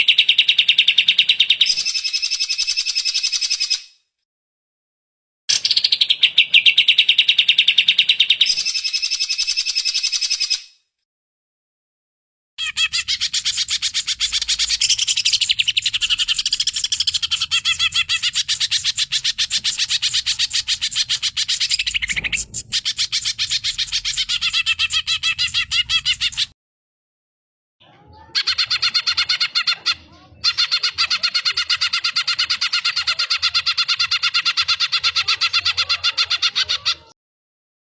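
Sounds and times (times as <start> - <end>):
bird singing rapid high notes: 12.6 - 26.5.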